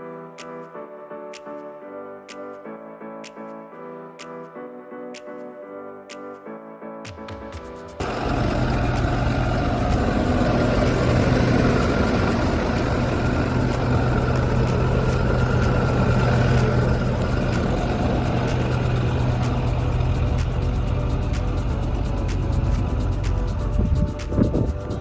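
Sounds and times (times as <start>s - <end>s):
truck diesel engine running: 8.0s - 25.0s.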